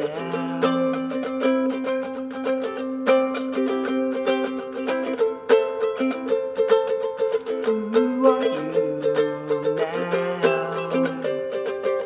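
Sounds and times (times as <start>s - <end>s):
plucked string instrument picking notes: 0.0s - 12.0s.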